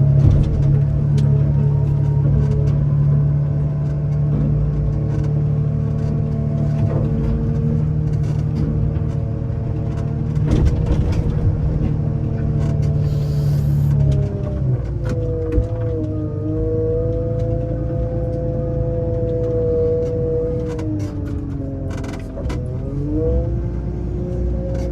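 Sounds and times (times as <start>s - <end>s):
truck engine running: 0.0s - 14.8s.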